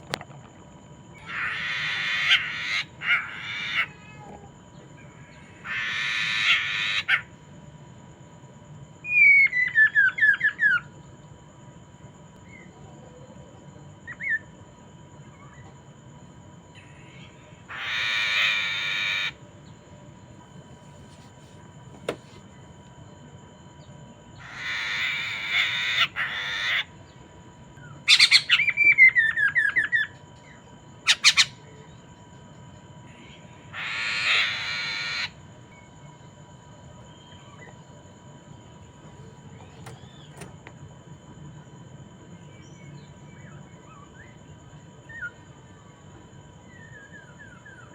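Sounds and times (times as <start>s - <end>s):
bird harsh rasping calls: 1.2s - 4.2s, 5.4s - 7.3s, 17.0s - 19.4s, 24.4s - 26.9s, 28.1s - 28.8s, 31.1s - 31.6s, 33.7s - 35.4s.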